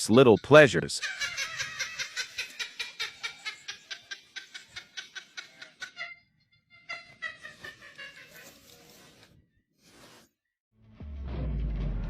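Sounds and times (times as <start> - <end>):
person laughing: 0.4 - 8.9.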